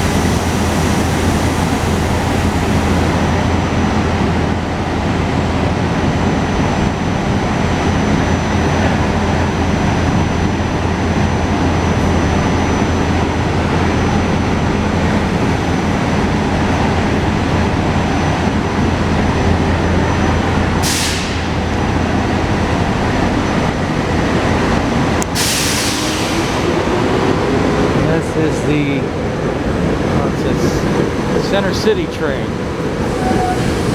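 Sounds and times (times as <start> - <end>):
sharp hisses of released air: 0.0 - 3.3, 20.8 - 21.6, 25.4 - 26.8
rising whine: 0.0 - 3.8
electric train rumble and hum: 0.0 - 33.9.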